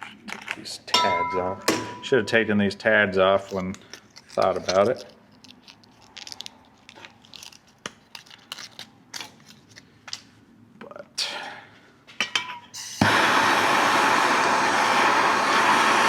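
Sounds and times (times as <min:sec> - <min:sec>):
hand tools clicking and scraping metal: 0:03.4 - 0:09.9.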